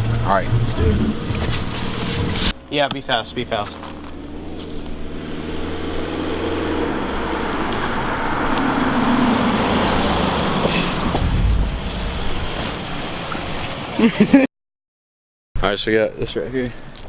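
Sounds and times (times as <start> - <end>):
car engine pulling away: 0.0 - 14.4
road and wind noise: 0.0 - 14.5
heavy low rumble: 8.1 - 14.1.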